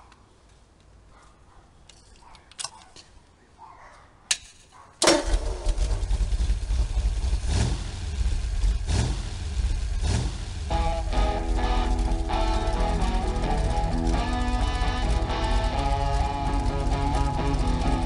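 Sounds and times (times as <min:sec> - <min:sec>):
car engine starting and revving: 0:05.0 - 0:18.0.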